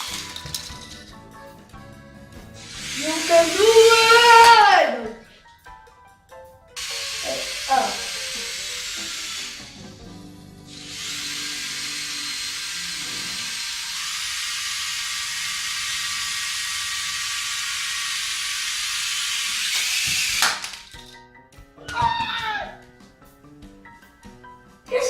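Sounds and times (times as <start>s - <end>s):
toy helicopter motor whirring: 0.0s - 1.1s, 2.6s - 4.7s, 6.8s - 21.2s.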